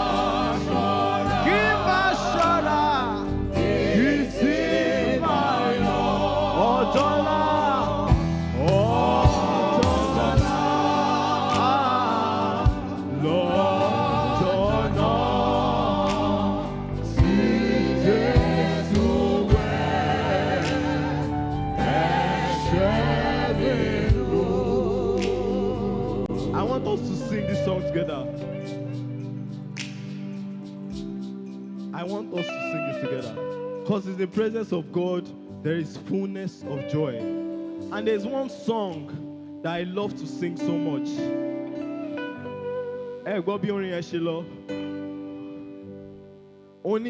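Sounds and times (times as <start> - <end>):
voices singing with vibrato: 0.0 - 27.4
keyboard and bass accompaniment: 0.0 - 47.0.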